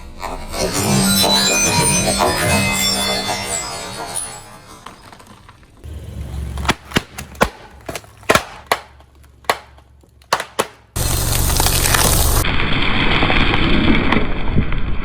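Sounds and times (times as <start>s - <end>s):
brittle items cracking and popping: 6.6s - 12.4s.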